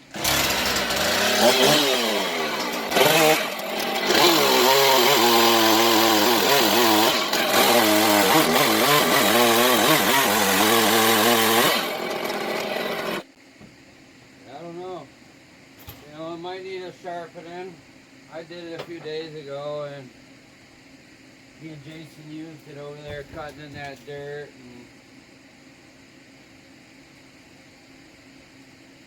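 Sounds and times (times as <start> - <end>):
chainsaw cutting at high revs: 0.0 - 13.3.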